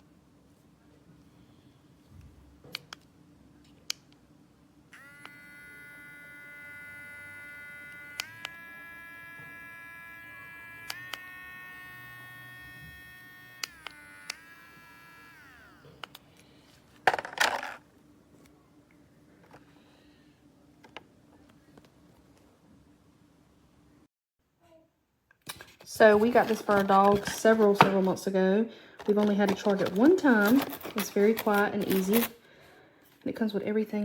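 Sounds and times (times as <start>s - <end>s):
nail grinder motor whining: 5.0s - 16.2s.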